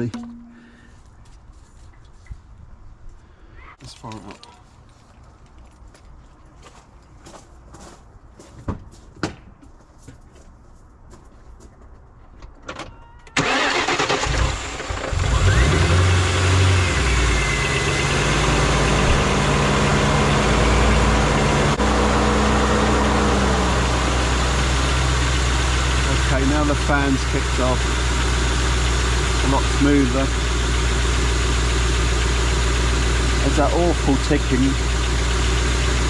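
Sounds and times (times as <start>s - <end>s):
car engine cranking and idling: 13.4s - 36.0s.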